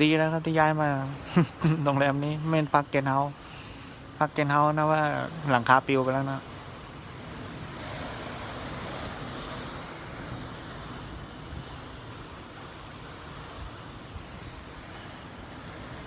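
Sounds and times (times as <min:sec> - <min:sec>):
strong wind rushing past building: 0:02.0 - 0:16.0.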